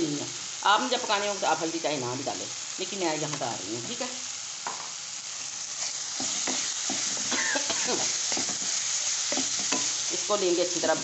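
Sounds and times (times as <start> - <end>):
masala sizzling in oil: 0.0 - 11.0
spatula scraping a pan: 5.4 - 10.2.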